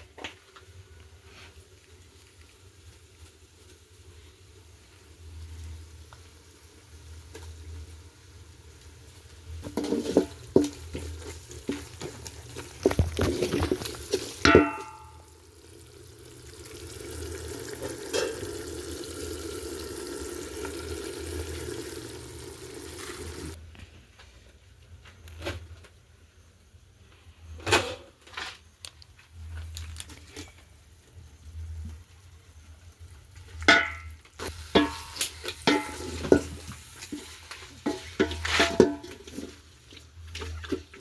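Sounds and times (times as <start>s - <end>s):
steady frying hiss: 0.0s - 41.0s
cooking pots and utensils clattering: 9.5s - 15.4s, 16.2s - 23.6s, 33.5s - 41.0s
metal pot clanging and ringing: 14.4s - 15.4s, 33.7s - 34.1s, 34.8s - 36.6s, 37.9s - 39.3s.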